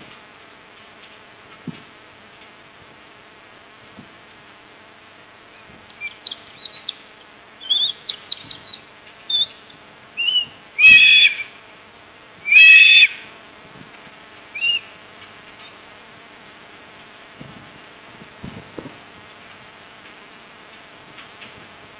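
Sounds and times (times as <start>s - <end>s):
low buzzing hum: 0.0s - 21.9s
birds chirping: 5.5s - 11.7s, 12.4s - 13.3s, 14.5s - 15.0s
longer bird calls: 5.5s - 11.7s, 12.4s - 13.4s, 14.5s - 15.0s.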